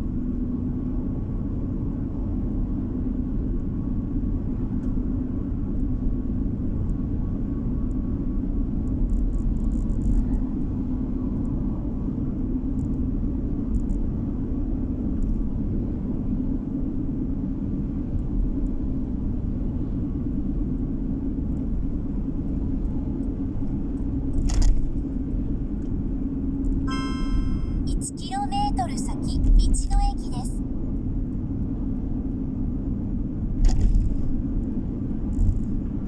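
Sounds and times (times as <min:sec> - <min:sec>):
car engine and road rumble: 0:00.0 - 0:26.8, 0:29.4 - 0:36.0
sharp loud noise: 0:26.9 - 0:27.9.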